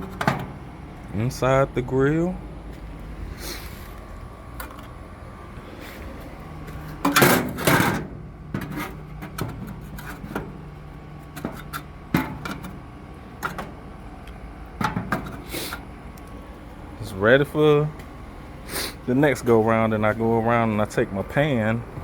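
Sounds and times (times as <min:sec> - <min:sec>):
metal grill parts clattering: 0:00.0 - 0:00.6, 0:06.8 - 0:12.8, 0:14.8 - 0:15.8.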